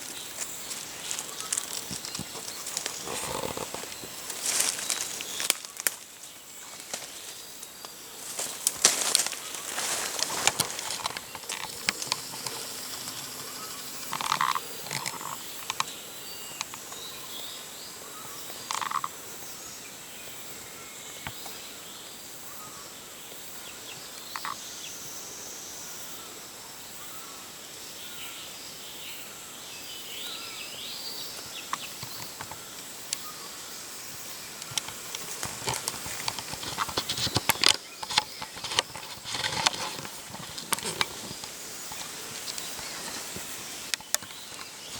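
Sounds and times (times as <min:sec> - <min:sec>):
brush clicking and rustling: 0:00.0 - 0:15.9, 0:31.7 - 0:33.3, 0:34.2 - 0:44.9
bird calls: 0:00.0 - 0:25.0, 0:27.0 - 0:44.9
high-pitched insect drone: 0:00.0 - 0:44.9.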